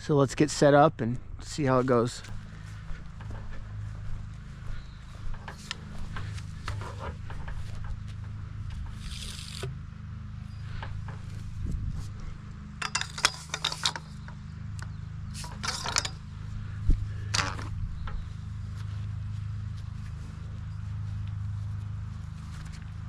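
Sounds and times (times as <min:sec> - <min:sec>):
small engine idling: 0:02.3 - 0:23.0
gear clicking and rattling: 0:05.2 - 0:09.8, 0:12.8 - 0:16.4.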